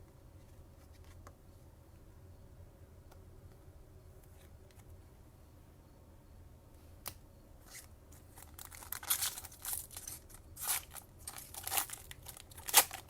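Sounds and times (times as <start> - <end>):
foil wrapper crinkling: 8.2 - 13.0.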